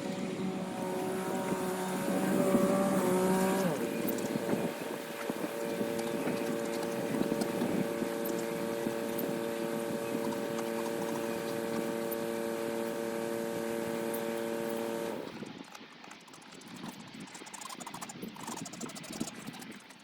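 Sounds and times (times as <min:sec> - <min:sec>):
tractor engine running: 0:00.0 - 0:15.8.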